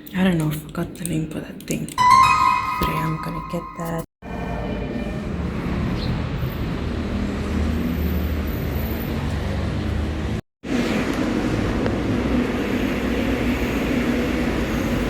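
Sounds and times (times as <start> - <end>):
road vehicle rumble and hiss: 5.1 - 15.0.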